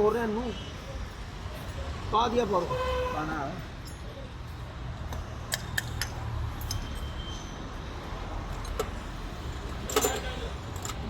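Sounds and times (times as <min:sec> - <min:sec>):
light metallic clinks: 0:03.8 - 0:04.2.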